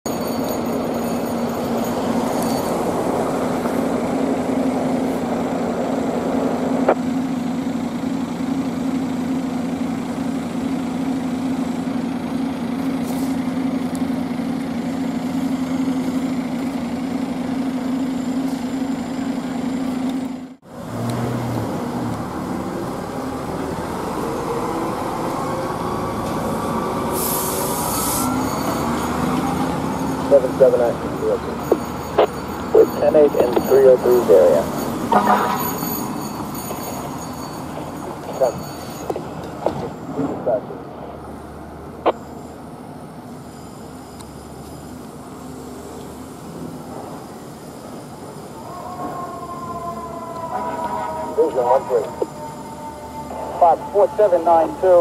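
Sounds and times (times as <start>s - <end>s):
fire engine running: 0.0s - 55.0s.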